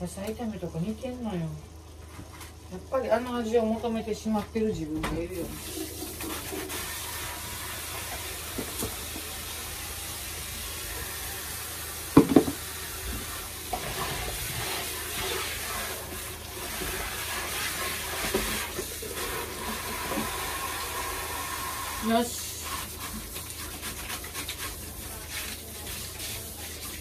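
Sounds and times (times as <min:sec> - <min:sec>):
food sizzling in a pan: 0:05.4 - 0:27.0
sharp knocks: 0:12.2 - 0:12.6.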